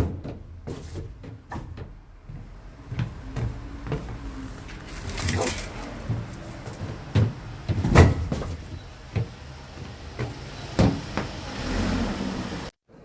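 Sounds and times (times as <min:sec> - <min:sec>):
firewood knocks and thuds: 0:04.9 - 0:08.7.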